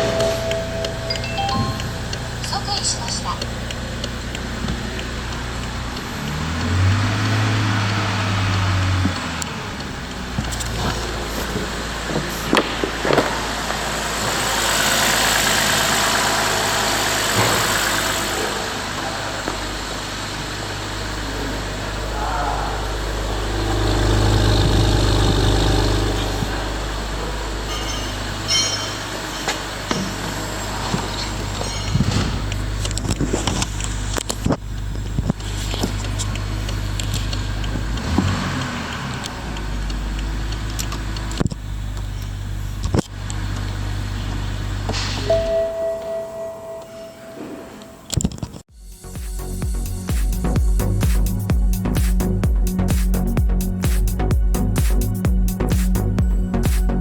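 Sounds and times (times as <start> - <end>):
car engine idling and revving: 0.0 - 45.5, 47.8 - 57.0
rushing hiss: 10.5 - 25.9.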